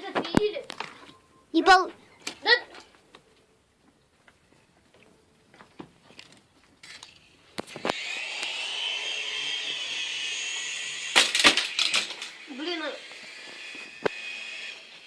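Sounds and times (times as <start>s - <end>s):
toy helicopter motor whine: 7.7s - 15.0s.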